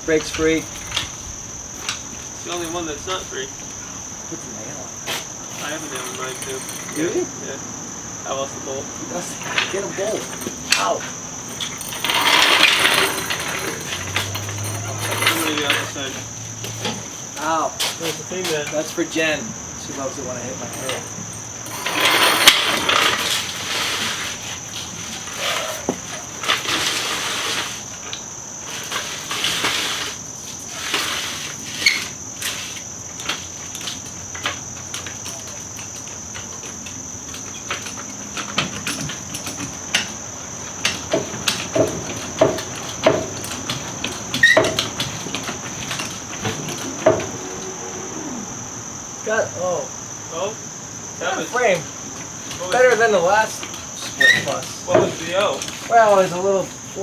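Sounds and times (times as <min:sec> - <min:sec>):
cricket trilling: 0:00.0 - 0:57.0
scraping noises: 0:05.1 - 0:07.1, 0:09.4 - 0:17.1, 0:20.7 - 0:27.9
knocks and clanks: 0:05.5 - 0:07.1, 0:09.4 - 0:16.1, 0:40.8 - 0:47.6.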